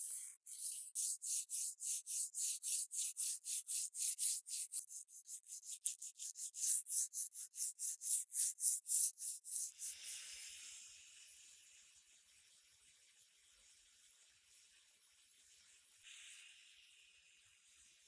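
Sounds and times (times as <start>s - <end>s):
rubbing strokes on rusted metal: 0.0s - 9.9s.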